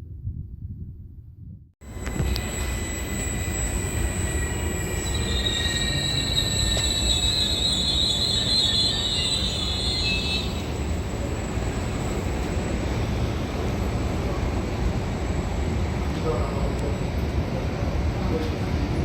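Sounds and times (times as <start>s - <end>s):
train low rumble: 0.0s - 19.0s
train brakes squealing: 1.8s - 13.8s.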